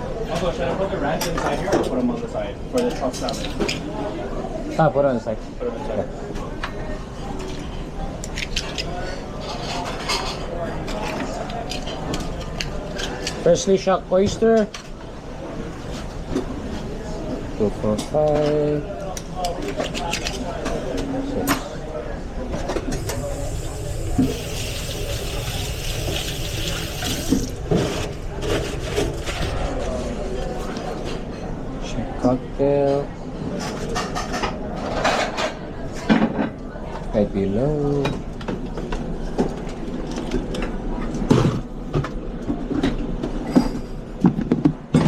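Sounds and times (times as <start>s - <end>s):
clatter of plates and pans: 8.6s - 12.3s, 33.5s - 36.6s, 41.2s - 45.0s
low kitchen rumble: 14.8s - 32.0s
steady low hum: 21.7s - 31.9s
water running from sink tap: 22.8s - 28.2s.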